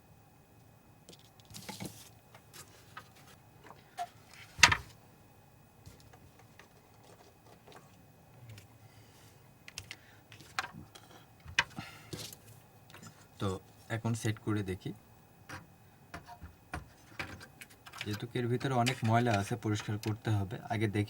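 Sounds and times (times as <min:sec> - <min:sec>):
clicks and taps of parts handled: 0:16.8 - 0:20.2.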